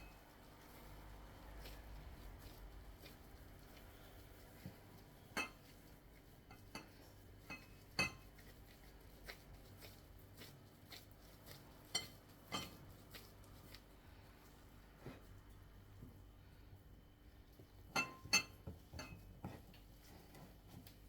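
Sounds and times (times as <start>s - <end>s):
utensils and dishes clinking: 6.5s - 8.3s, 11.9s - 12.8s, 18.0s - 19.2s.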